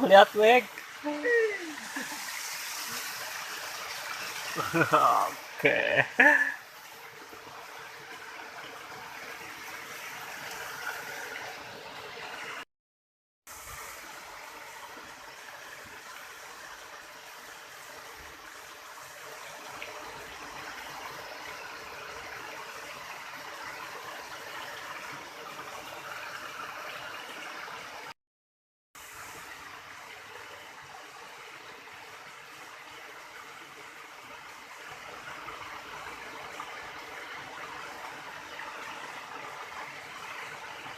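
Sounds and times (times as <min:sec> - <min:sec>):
river water flowing and splashing: 0:00.0 - 0:12.6, 0:13.5 - 0:28.1, 0:29.0 - 0:40.9.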